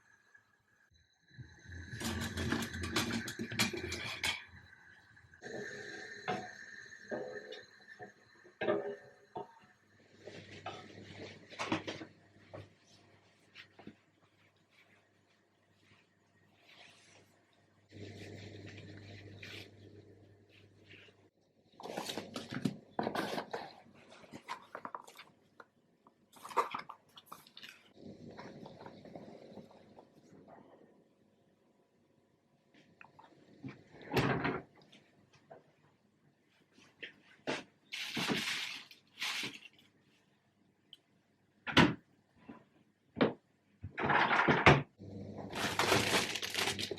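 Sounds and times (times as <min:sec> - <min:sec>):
rustling: 0:37.9 - 0:39.9, 0:45.5 - 0:46.9.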